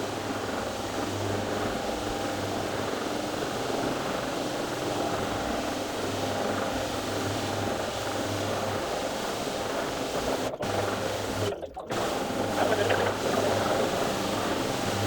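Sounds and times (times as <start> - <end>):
carpet cleaning machine running: 5.0 - 15.0.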